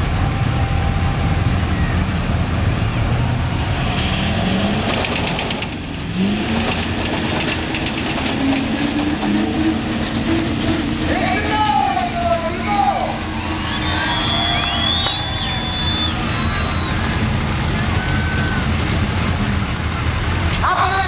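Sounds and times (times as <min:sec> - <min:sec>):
tractor engine running under load: 0:04.7 - 0:21.0
rapid rattle: 0:04.8 - 0:12.5.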